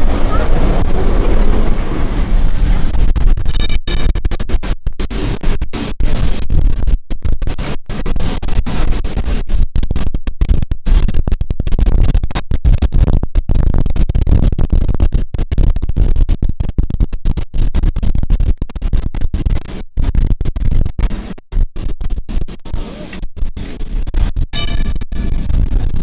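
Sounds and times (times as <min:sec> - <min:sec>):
tram rumbling and rattling: 0:00.0 - 0:03.0.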